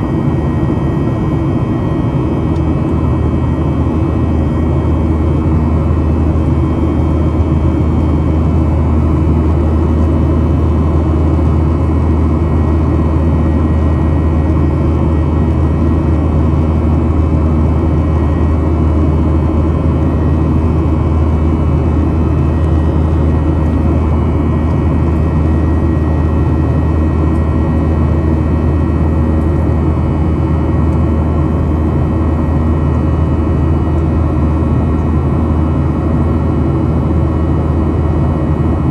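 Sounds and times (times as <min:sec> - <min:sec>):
jet engines droning: 0:00.0 - 0:38.9.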